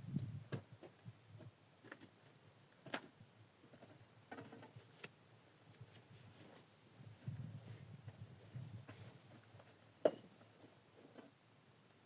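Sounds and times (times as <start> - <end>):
soft low rustle: 5.7 - 11.3.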